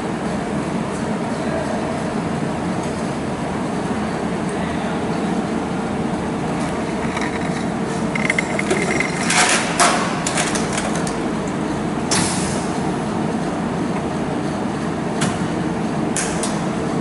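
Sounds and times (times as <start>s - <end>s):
steady mechanical rumble: 0.0s - 17.0s
sharp metallic clinks and knocks: 6.6s - 10.8s.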